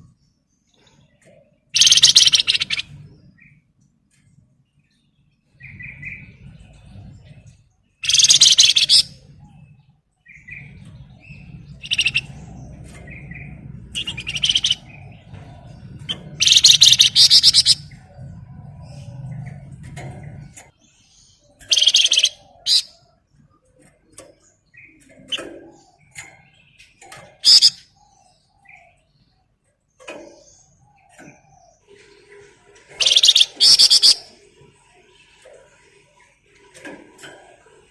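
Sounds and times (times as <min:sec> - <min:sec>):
songbird chirping: 0:00.0 - 0:37.9
low hum: 0:10.5 - 0:20.7.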